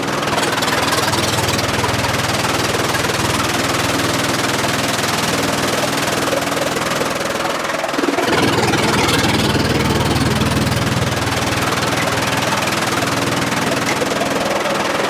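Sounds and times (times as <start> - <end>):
sawmill machinery humming: 0.0 - 15.0.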